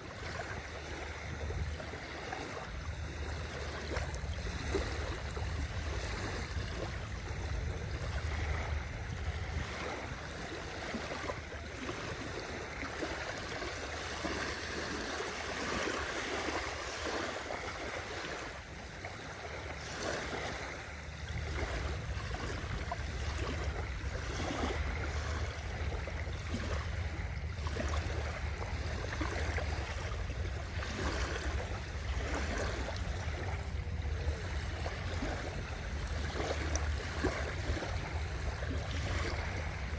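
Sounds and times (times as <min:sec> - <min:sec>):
sea waves splashing: 0:00.0 - 0:39.9
steady low rumble: 0:00.1 - 0:10.8, 0:20.7 - 0:39.9.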